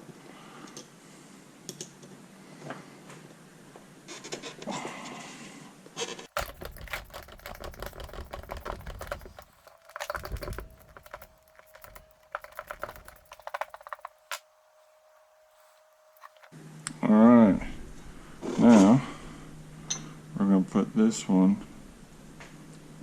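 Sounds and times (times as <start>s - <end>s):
metal parts and tools clicking: 6.4s - 14.5s, 15.6s - 16.5s.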